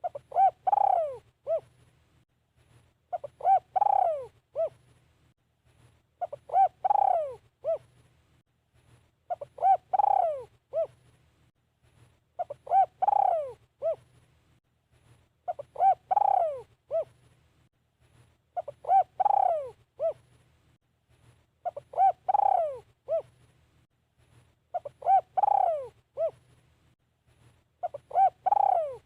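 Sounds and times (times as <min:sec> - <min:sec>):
dove cooing: 0:00.0 - 0:01.7, 0:03.1 - 0:04.8, 0:06.2 - 0:07.9, 0:09.3 - 0:11.0, 0:12.4 - 0:14.1, 0:15.5 - 0:17.2, 0:18.6 - 0:20.2, 0:21.6 - 0:23.4, 0:24.7 - 0:26.4, 0:27.8 - 0:29.0.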